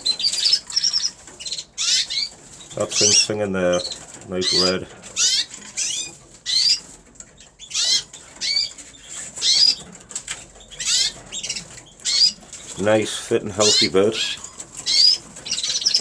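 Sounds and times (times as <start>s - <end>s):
canary singing trilled phrases: 0.0s - 16.0s.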